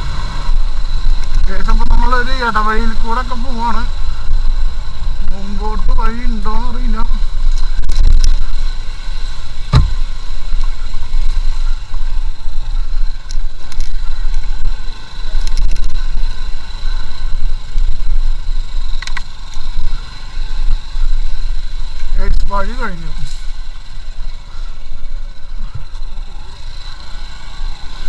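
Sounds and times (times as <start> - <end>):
motorcycle engine running: 0.0 - 28.0
wind rumble on microphone: 7.0 - 8.9, 9.6 - 20.0
sharp knock: 9.7 - 10.0.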